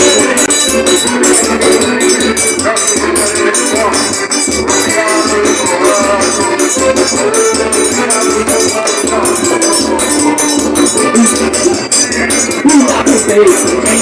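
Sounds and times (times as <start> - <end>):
instrumental melody: 0.0 - 14.0.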